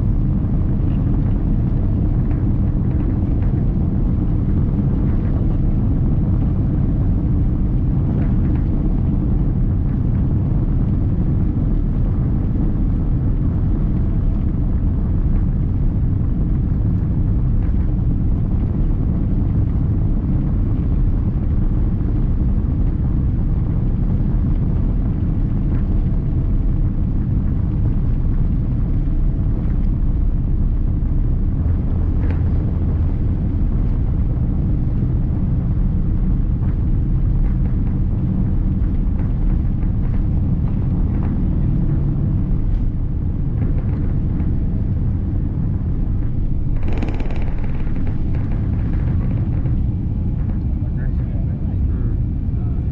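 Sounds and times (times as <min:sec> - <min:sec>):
airliner cabin rumble: 0:00.0 - 0:52.9.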